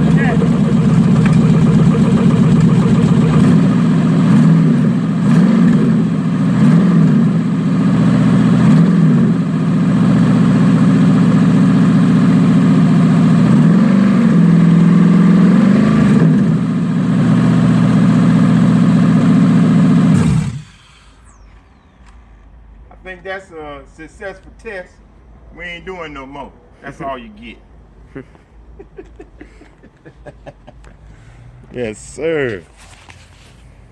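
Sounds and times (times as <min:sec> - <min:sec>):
van engine revving: 0:00.0 - 0:21.5.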